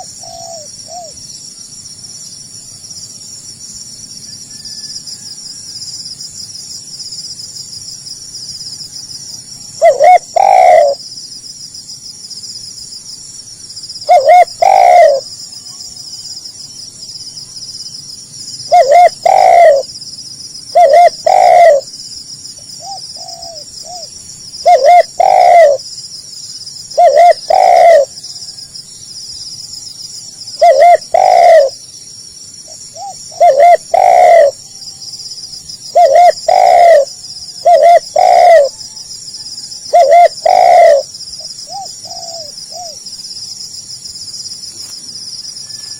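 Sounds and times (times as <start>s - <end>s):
dove cooing: 0.0s - 1.2s, 9.8s - 11.0s, 14.0s - 15.3s, 18.7s - 19.9s, 20.7s - 21.9s, 22.8s - 25.8s, 27.0s - 28.2s, 30.6s - 31.8s, 32.9s - 34.7s, 35.9s - 43.0s
high insect buzz: 0.0s - 45.9s.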